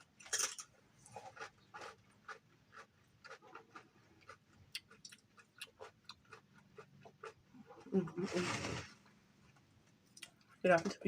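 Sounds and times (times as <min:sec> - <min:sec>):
chewing crispy fried chicken: 0:00.0 - 0:08.2.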